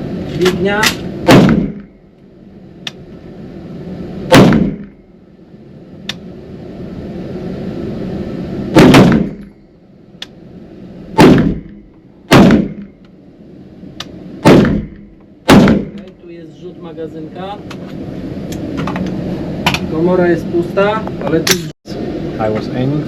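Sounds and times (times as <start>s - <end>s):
rifle gunshots: 0.8s - 1.9s, 4.3s - 5.0s, 8.7s - 9.4s, 11.2s - 12.9s, 14.4s - 16.0s.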